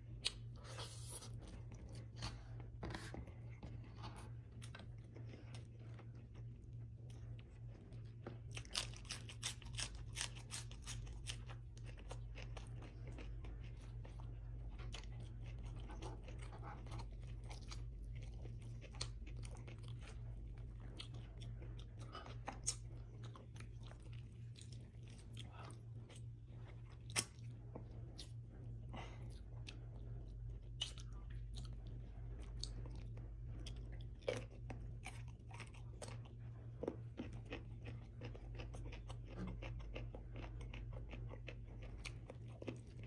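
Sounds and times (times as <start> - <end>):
wet chewing: 0.1 - 43.0
crunching lettuce: 8.1 - 25.7.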